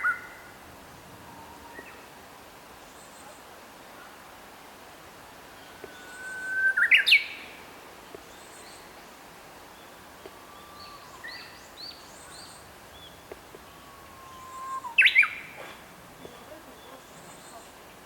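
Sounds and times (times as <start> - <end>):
bush warbler singing: 5.6 - 18.0.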